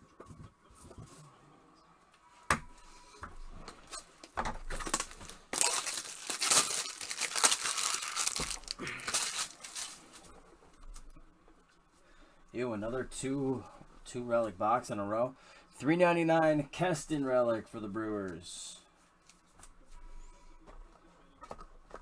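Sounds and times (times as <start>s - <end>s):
packaging tearing and crinkling: 4.2s - 10.2s.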